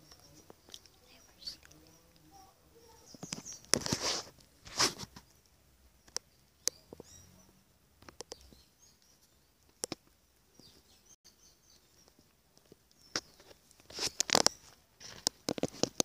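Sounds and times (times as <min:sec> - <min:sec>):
sharp clicks and taps: 0:06.0 - 0:07.1, 0:08.0 - 0:10.7.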